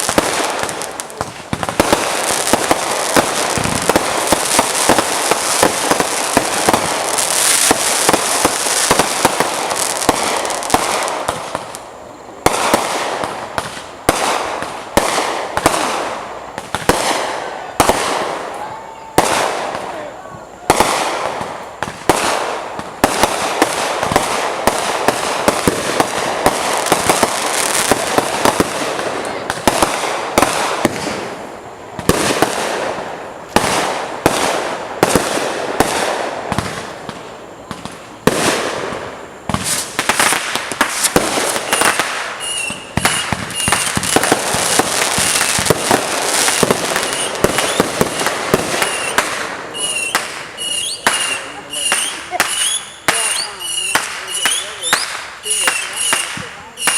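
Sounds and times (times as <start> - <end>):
fireworks bangs and crackling pops: 0.0 - 56.9.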